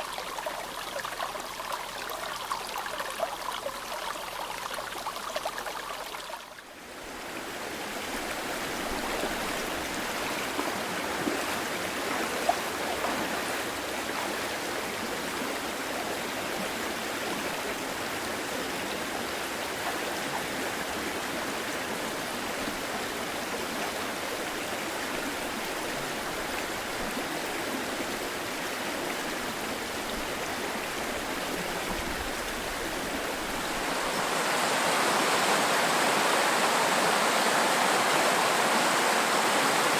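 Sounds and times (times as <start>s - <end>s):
river babbling: 0.0s - 39.9s.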